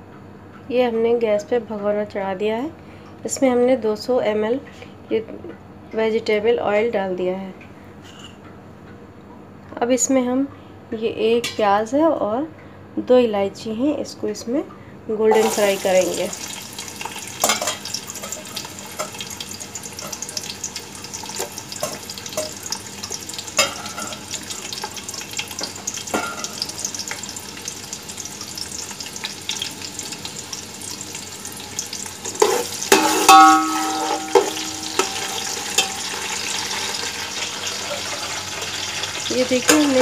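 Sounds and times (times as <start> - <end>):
onion sizzling in oil: 15.3 - 40.0
metal spoon knocking against pot: 32.9 - 36.0.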